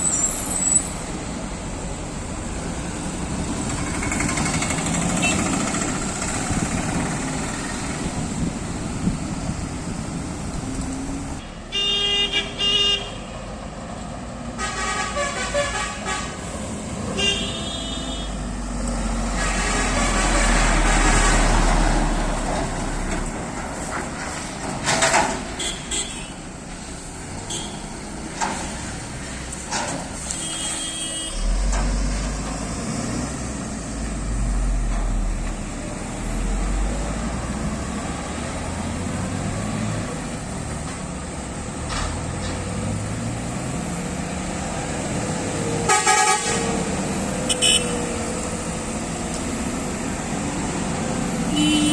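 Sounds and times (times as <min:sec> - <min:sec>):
diesel engines running: 0:00.0 - 0:11.4, 0:13.5 - 0:51.9
vehicles passing: 0:00.0 - 0:51.9
truck horn blasts: 0:11.7 - 0:13.3, 0:14.6 - 0:16.4, 0:17.2 - 0:18.5, 0:30.3 - 0:31.6, 0:45.8 - 0:48.1, 0:51.5 - 0:51.9.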